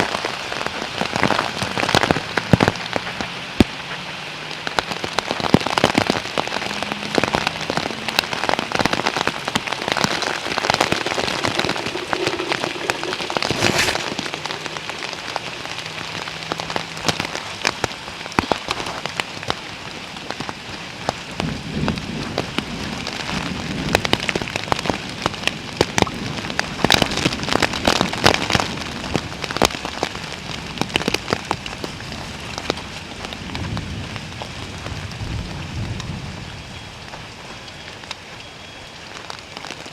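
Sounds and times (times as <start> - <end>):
heavy rain falling: 0.0 - 39.9
raindrops tapping: 0.0 - 39.9.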